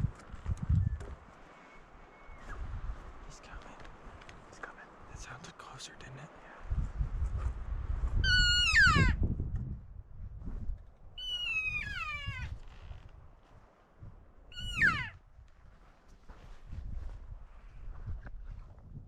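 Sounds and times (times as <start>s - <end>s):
wind rumble on microphone: 0.0s - 19.0s
elk mews: 8.2s - 9.2s, 11.2s - 12.5s, 14.5s - 15.2s.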